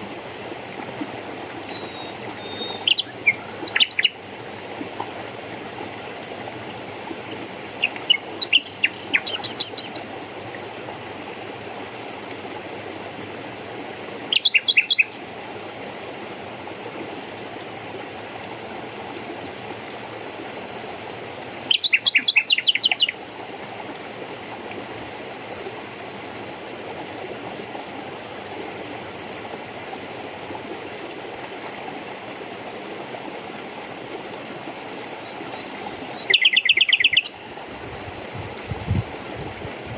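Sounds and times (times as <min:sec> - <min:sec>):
running water: 0:00.0 - 0:39.9
songbird whistling and trilling: 0:14.0 - 0:15.1, 0:35.8 - 0:37.3.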